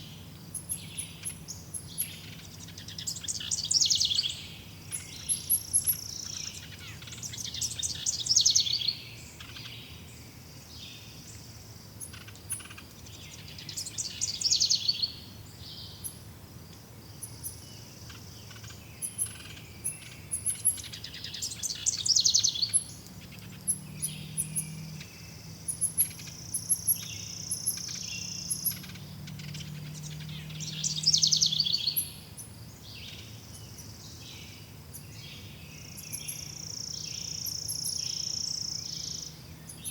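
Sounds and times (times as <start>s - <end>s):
very high bird chirps: 0.0s - 9.7s, 12.0s - 15.2s, 17.3s - 34.2s.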